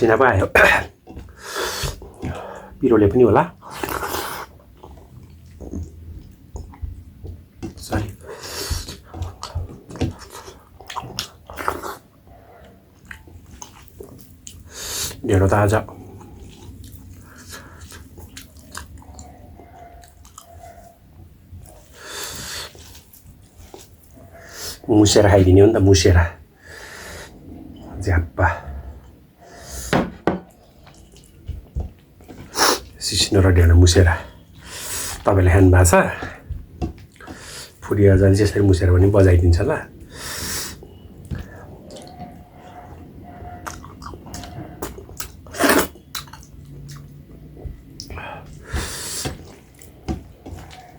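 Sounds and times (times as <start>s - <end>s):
close chewing: 3.6s - 24.9s, 36.2s - 37.9s, 40.8s - 50.9s
person chewing with lip smacks: 8.6s - 12.0s, 16.0s - 20.9s, 43.6s - 50.9s
wet mouth clicks: 43.6s - 47.2s, 47.9s - 50.0s.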